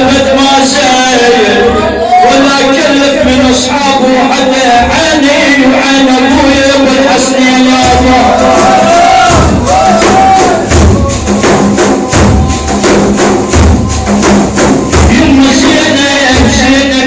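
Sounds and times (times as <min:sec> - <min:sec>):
drum rhythm: 0:00.0 - 0:01.9, 0:02.6 - 0:17.0
deep drum thumps: 0:04.7 - 0:17.0
tambourine-like strikes: 0:07.8 - 0:17.0.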